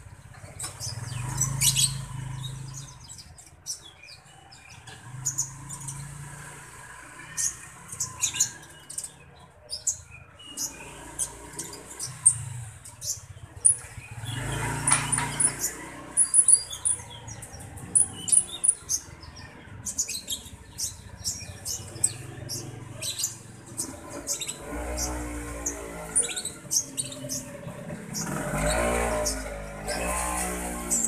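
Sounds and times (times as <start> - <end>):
bird chirping: 0.0 - 6.6, 7.2 - 31.0.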